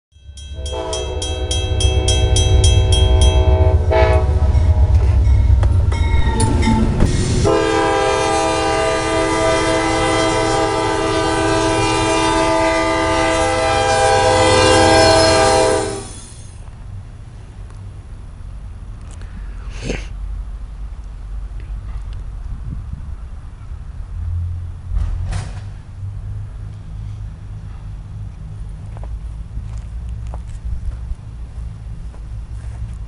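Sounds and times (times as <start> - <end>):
low engine rumble: 0.1 - 33.0
locomotive air horn: 0.5 - 16.4.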